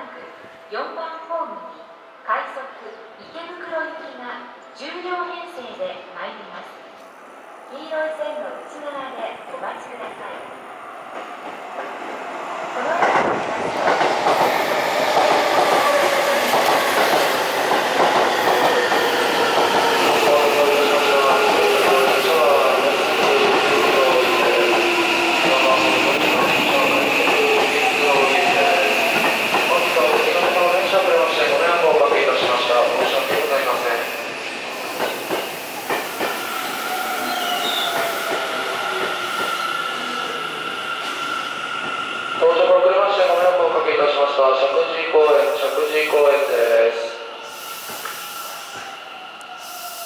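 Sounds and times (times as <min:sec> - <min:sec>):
electric train rolling to a stop: 0:13.2 - 0:42.8, 0:45.5 - 0:50.0
high-pitched brake squeal: 0:36.4 - 0:42.0, 0:47.4 - 0:50.0.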